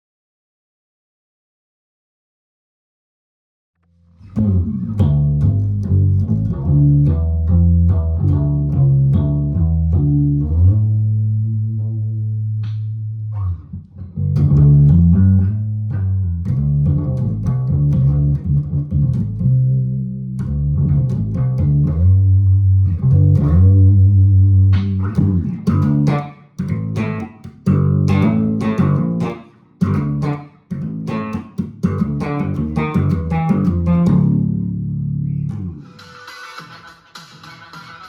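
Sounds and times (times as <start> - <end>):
guitar plucked notes and chords: 4.2 - 11.2, 12.5 - 35.9.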